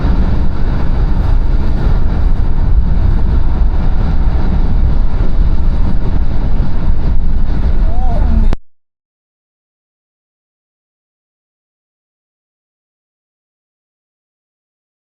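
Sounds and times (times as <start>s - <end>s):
car road and engine noise: 0.0s - 8.6s.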